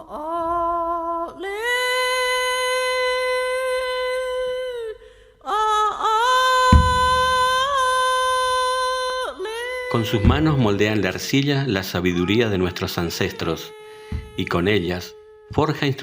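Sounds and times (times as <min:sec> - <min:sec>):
low thump: 0:06.7 - 0:07.8, 0:10.2 - 0:10.6, 0:14.1 - 0:14.5.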